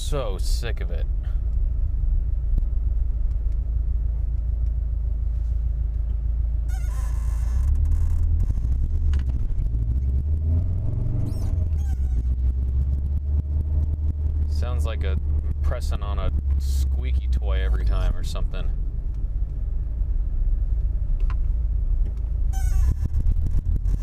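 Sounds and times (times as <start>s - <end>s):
car engine and road rumble: 0.0s - 24.0s
clutch squeaking: 6.6s - 9.5s, 11.2s - 12.4s, 22.5s - 24.0s.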